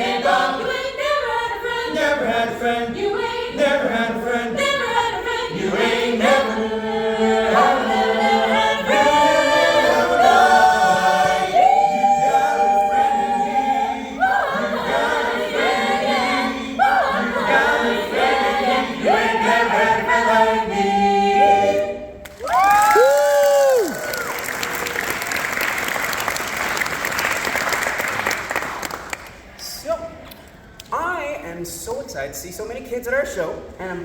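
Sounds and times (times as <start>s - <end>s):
a cappella ensemble singing: 0.0s - 22.3s.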